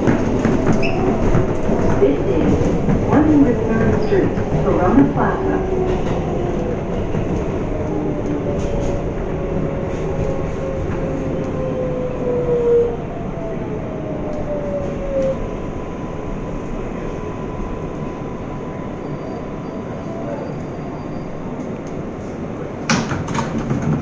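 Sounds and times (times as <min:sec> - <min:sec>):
train rumbling on rails: 0:00.0 - 0:24.0
train jolt: 0:22.6 - 0:24.0.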